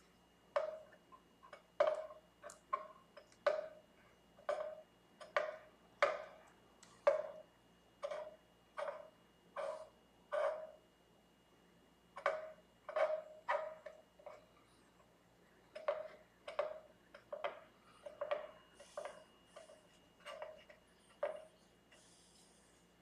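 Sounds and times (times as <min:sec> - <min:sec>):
metal tool scraping: 0:08.0 - 0:10.8, 0:12.2 - 0:14.5, 0:18.0 - 0:21.5.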